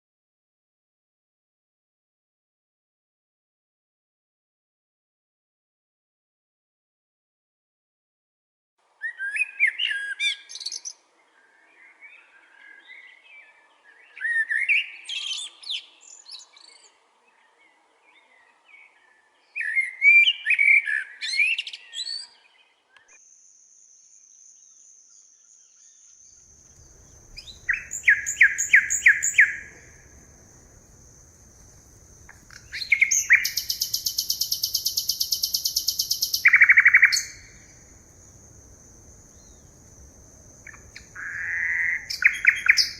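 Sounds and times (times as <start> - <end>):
forest birds singing: 9.0 - 23.4, 24.0 - 42.9
steady high whine: 26.5 - 34.1.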